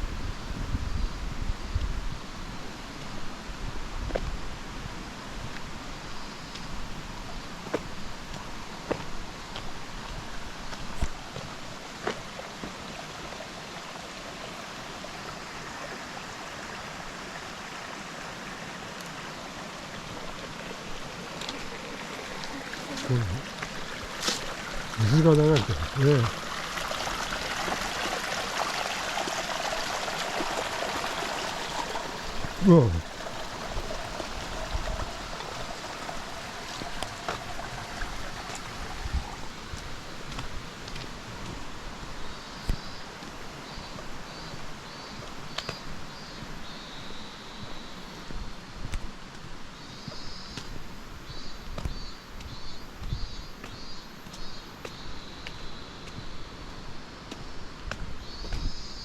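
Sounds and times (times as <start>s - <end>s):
stream water rushing: 4.3s - 51.1s.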